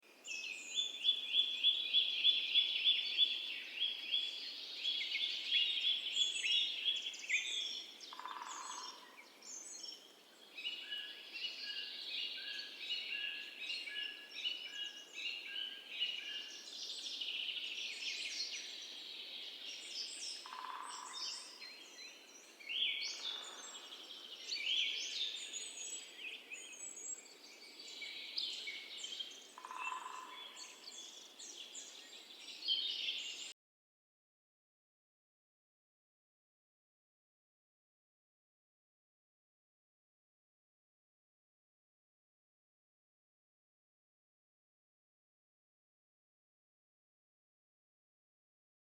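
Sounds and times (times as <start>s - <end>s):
birds trilling chirps: 7.0s - 10.1s, 20.2s - 33.5s.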